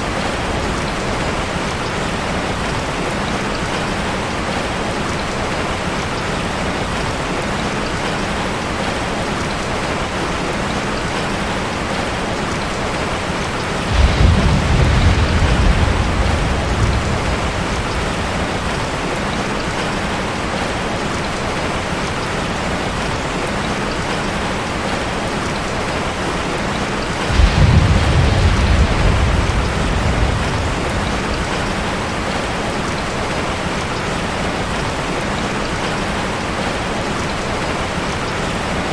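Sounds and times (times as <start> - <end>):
rain drumming on metal roof: 0.0 - 38.9
thunder rolling: 13.7 - 20.2, 27.2 - 33.4.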